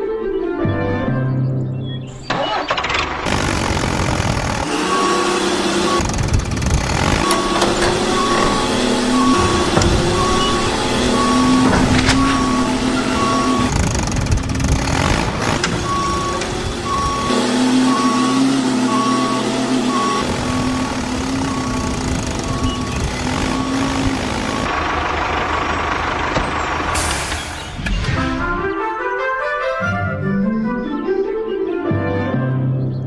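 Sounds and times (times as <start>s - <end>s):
engine hum: 2.2s - 28.6s
vehicle reversing alarm beeping: 2.3s - 28.0s.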